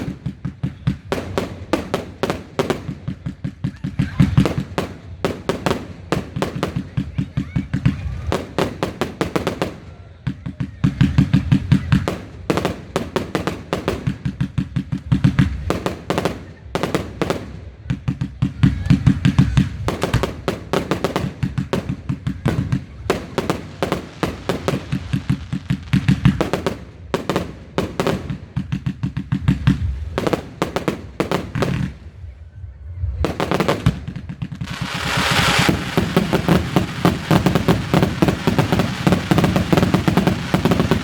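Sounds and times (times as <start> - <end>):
fireworks bangs: 0.0 - 41.0.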